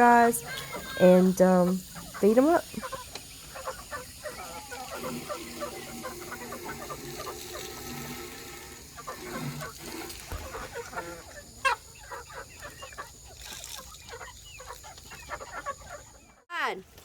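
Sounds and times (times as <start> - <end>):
chickens clucking: 0.0 - 16.5
chicken falling call: 1.7 - 13.1.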